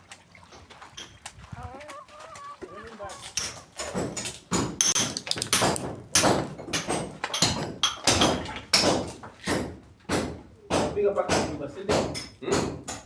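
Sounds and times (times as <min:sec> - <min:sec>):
sharp ringing knocks: 0:03.4 - 0:13.0.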